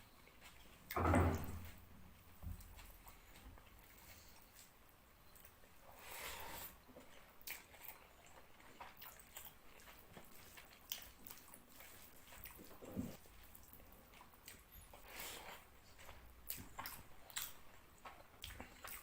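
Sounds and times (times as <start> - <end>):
wet chewing and squishing: 6.8 - 19.0.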